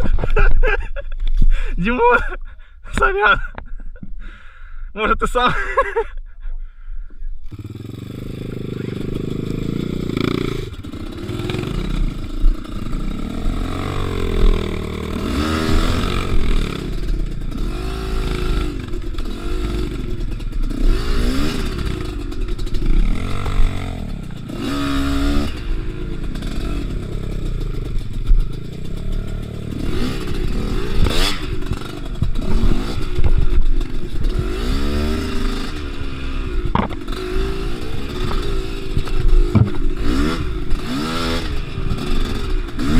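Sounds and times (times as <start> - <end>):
motorcycle engine revving: 7.4 - 42.9
motorcycle clattering: 7.5 - 42.9
sharp knocks: 36.7 - 37.1, 39.5 - 39.9.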